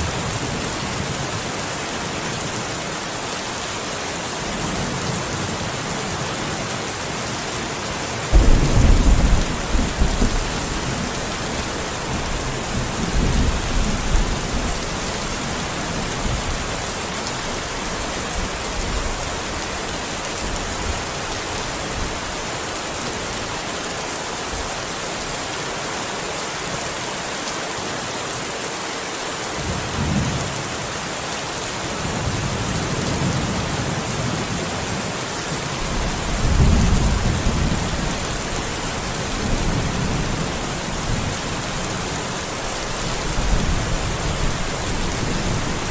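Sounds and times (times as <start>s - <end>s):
steady rain: 0.0s - 45.9s
rolling thunder: 8.3s - 14.9s, 35.9s - 42.2s.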